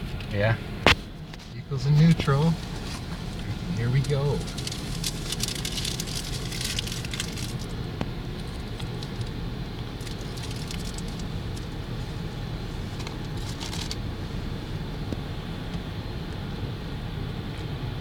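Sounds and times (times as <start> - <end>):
car wash machinery rumbling: 0.0 - 18.0
water spattering on car: 4.0 - 7.8, 8.4 - 12.2.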